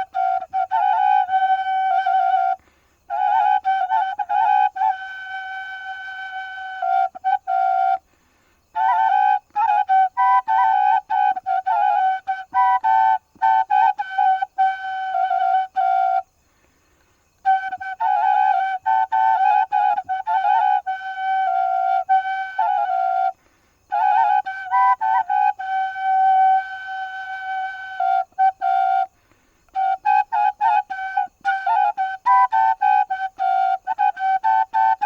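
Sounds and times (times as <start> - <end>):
solo flute: 0.0 - 35.0.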